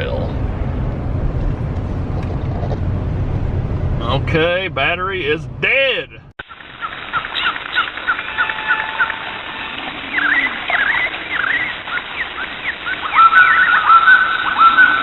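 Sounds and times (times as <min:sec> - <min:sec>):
birds chirping: 0:06.4 - 0:15.0
bird whistling rising notes: 0:06.6 - 0:15.0.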